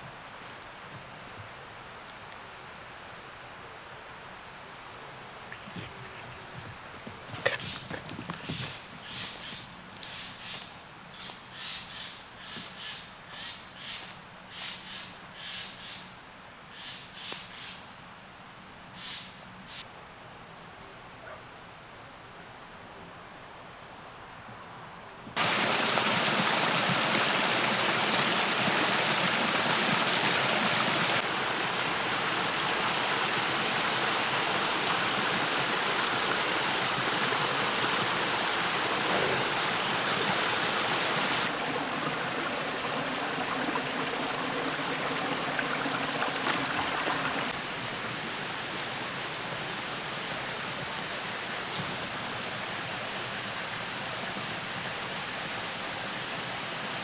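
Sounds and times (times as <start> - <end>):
creek water rushing and splashing: 0.0 - 11.0, 25.4 - 57.0.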